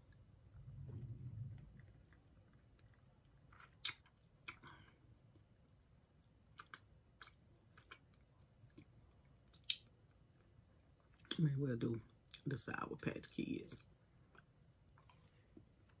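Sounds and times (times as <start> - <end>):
person chewing candy: 1.7 - 5.1, 6.5 - 11.4
mouth clicks and smacks: 2.8 - 4.7, 6.5 - 8.9, 9.5 - 9.9.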